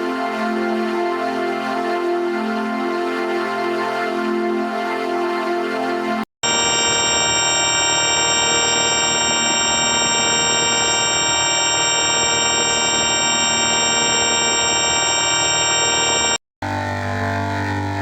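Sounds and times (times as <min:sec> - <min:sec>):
buzzy vocoder tone: 0:06.4 - 0:16.4.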